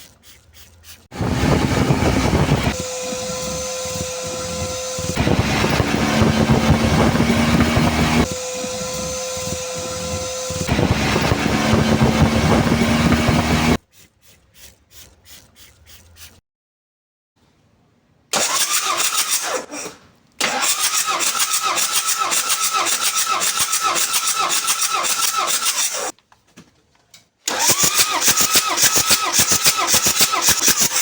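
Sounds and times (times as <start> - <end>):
diesel engine cranking: 1.1 - 13.8, 18.3 - 26.1, 27.5 - 31.0.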